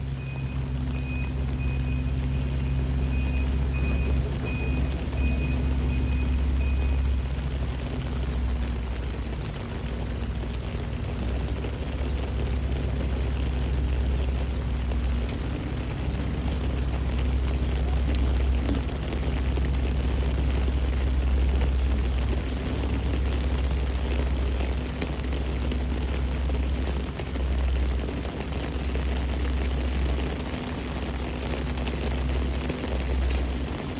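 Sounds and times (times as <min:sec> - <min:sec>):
rain hiss: 0:00.0 - 0:33.9.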